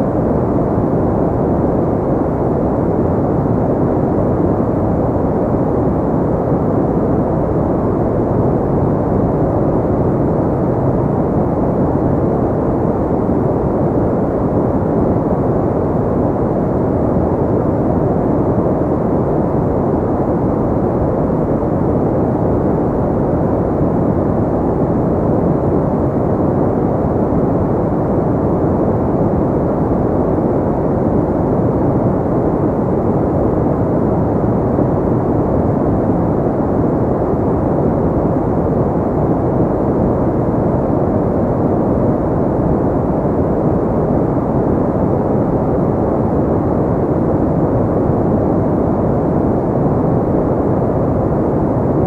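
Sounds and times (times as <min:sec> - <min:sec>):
muffled white noise hiss: 0:00.0 - 0:52.0.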